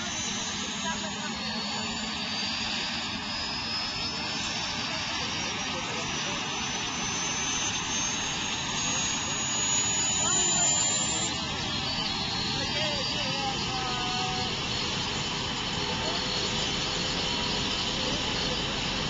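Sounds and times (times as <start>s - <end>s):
high whine rising in pitch: 0.0s - 19.0s
powerful engine running: 0.0s - 19.0s.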